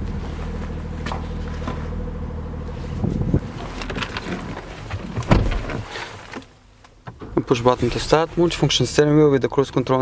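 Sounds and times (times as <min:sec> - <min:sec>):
diesel engine idling: 0:00.0 - 0:04.9.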